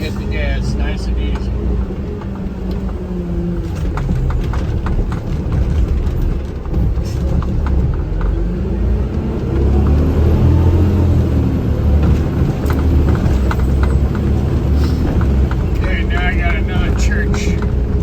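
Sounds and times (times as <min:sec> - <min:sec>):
truck engine rumbling: 0:00.0 - 0:18.0
faint clicks and rattles: 0:00.1 - 0:08.4, 0:12.0 - 0:18.0.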